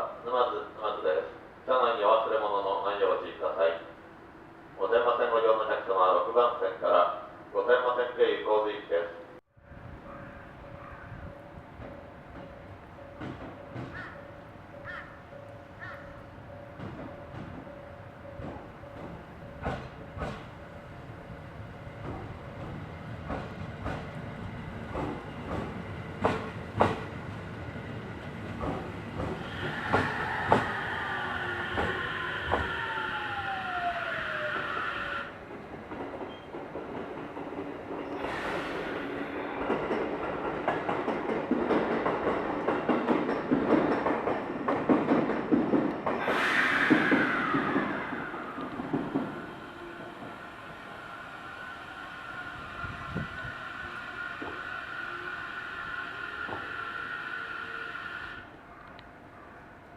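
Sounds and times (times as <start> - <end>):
train rumble: 9.6 - 59.9
train wheels clicking over rail joints: 11.8 - 15.1, 15.8 - 20.7, 21.9 - 50.9, 53.1 - 59.0
high squeal with falling whine: 29.4 - 35.4, 51.1 - 58.1.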